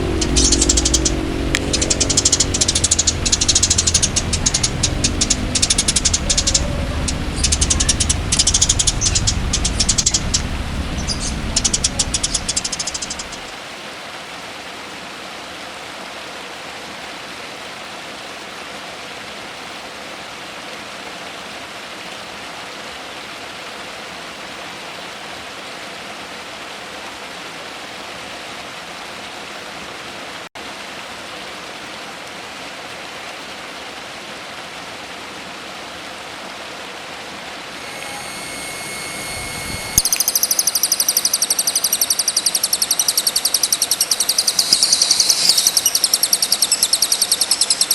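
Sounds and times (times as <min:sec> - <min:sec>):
songbird trilling: 0:00.0 - 0:13.5, 0:37.8 - 0:47.9
steady hiss like rushing water: 0:00.0 - 0:47.9.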